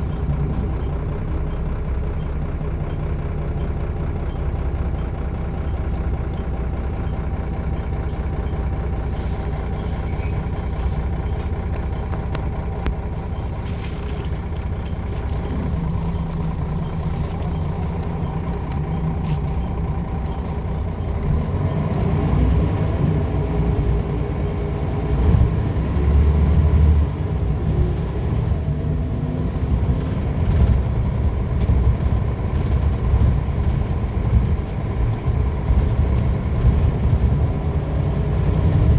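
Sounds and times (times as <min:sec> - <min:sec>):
bus engine accelerating: 0:00.0 - 0:38.9.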